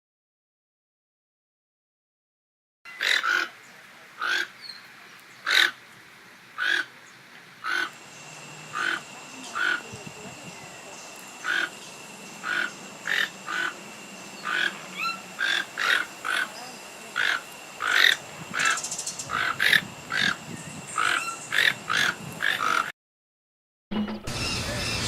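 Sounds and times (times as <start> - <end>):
bird giving short calls: 6.6 - 6.9, 7.6 - 7.9, 8.7 - 10.0, 11.4 - 11.8, 12.4 - 13.8, 14.4 - 16.6, 17.2 - 20.4, 21.0 - 22.9.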